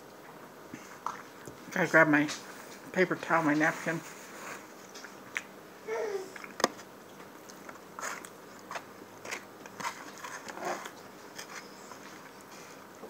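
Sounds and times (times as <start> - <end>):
person chewing food: 6.3 - 13.0.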